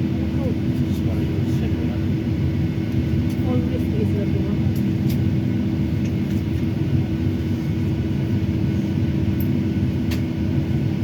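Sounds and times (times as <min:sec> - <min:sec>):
airliner cabin rumble: 0:00.0 - 0:11.0
constant hum: 0:00.0 - 0:11.0
small click: 0:09.4 - 0:10.3.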